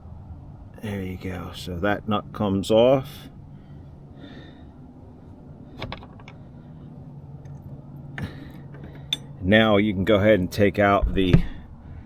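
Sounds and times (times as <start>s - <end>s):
low steady hum: 0.0s - 12.0s
tools and parts clicking: 8.2s - 9.4s.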